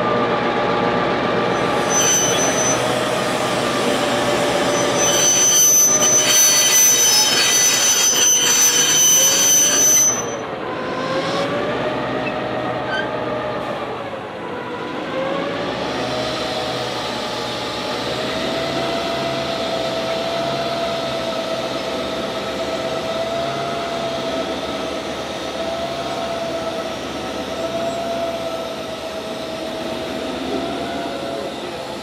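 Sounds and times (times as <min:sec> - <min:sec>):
wheels squealing: 0:01.6 - 0:10.4
diesel engines droning: 0:10.0 - 0:32.0.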